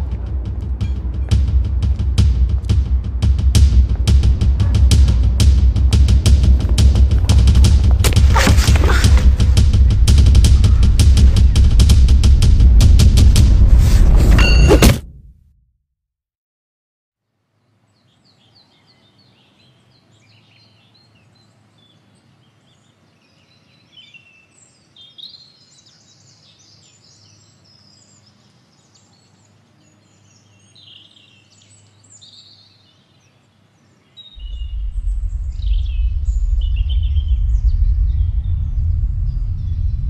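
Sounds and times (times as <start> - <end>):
loud low rumble: 0.0 - 14.6, 34.4 - 40.0
birds singing and chirping: 18.0 - 40.0.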